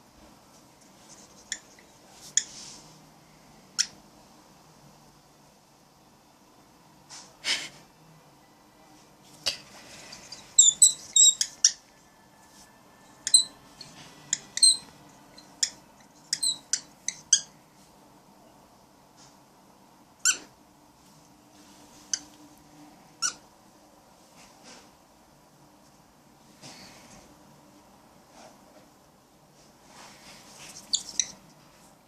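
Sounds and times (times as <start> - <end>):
cockatiel squeaky calls: 10.3 - 11.8, 14.3 - 17.5, 20.2 - 20.5, 23.2 - 23.4, 30.8 - 31.4.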